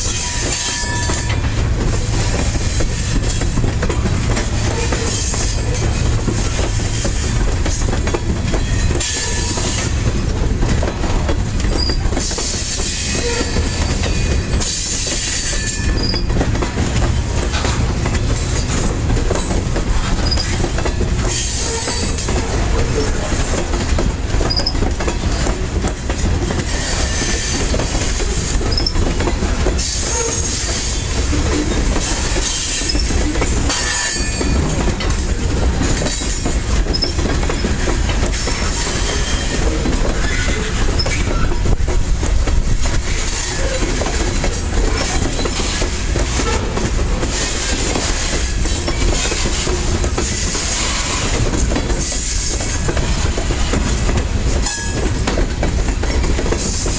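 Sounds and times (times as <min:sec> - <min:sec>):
freight train rumbling past: 0:00.0 - 0:56.9
wheels clacking over rail joints: 0:00.0 - 0:56.9
high wheel squeals: 0:38.4 - 0:41.6.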